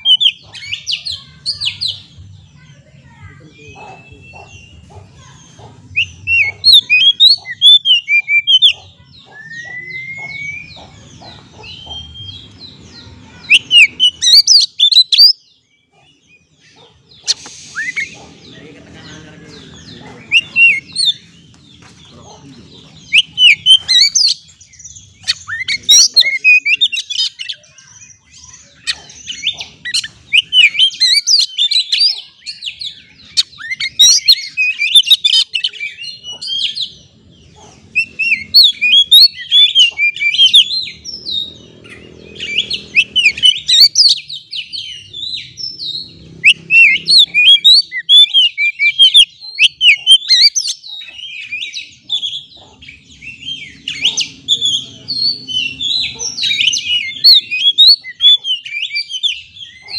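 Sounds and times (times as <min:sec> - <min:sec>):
bird singing whistles and chirps: 0:06.0 - 0:10.8, 0:17.3 - 0:18.3.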